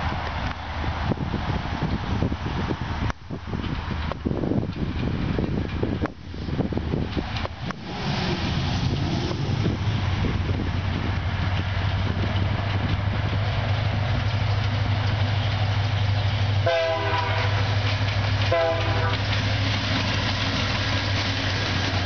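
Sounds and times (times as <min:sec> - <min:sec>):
diesel locomotive engine drone: 0:00.0 - 0:22.0.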